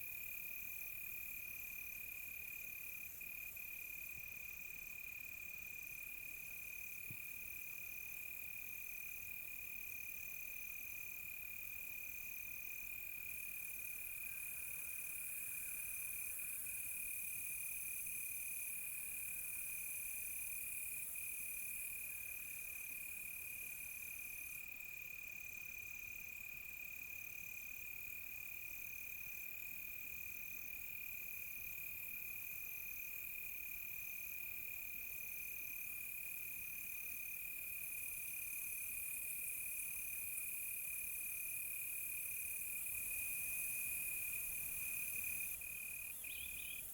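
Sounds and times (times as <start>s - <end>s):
faint hiss of insects: 0.0s - 46.9s
cricket trill: 36.9s - 46.9s.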